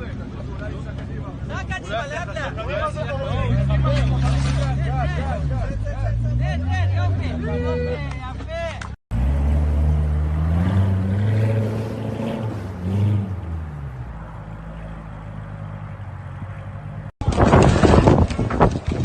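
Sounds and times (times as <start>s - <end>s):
car engine revving: 9.1s - 17.1s.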